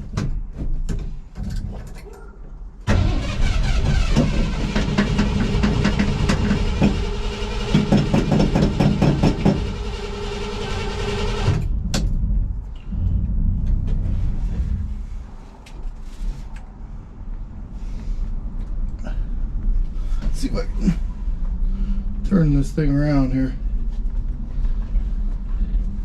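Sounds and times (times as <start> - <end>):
low rumble: 2.8 - 26.0
pickup engine clicking and rattling: 2.9 - 12.2.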